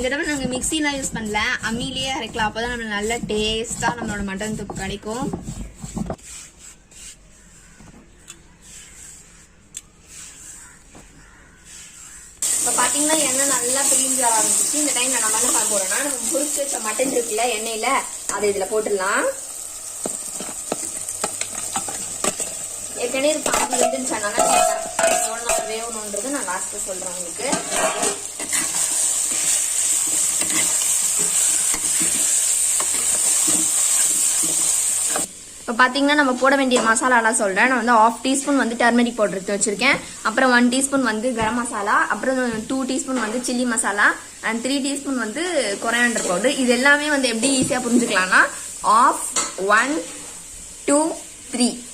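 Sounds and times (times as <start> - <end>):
meat sizzling in masala: 0.0 - 7.8, 8.6 - 51.9
spoon scraping a pan: 0.0 - 19.0, 20.0 - 35.3
stone roller scraping grinding stone: 27.4 - 35.2.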